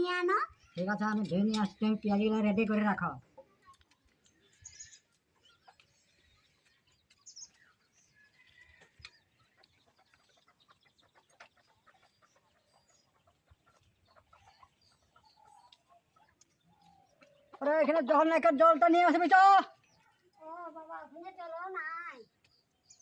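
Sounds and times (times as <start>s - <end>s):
chicken clucking: 3.2s - 18.5s.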